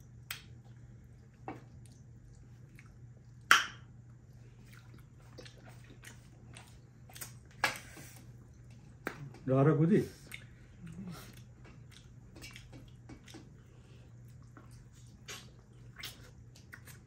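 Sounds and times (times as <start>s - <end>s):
wet chewing and lip smacks: 0.0s - 9.4s, 10.2s - 17.0s
steady low hum: 0.0s - 17.0s.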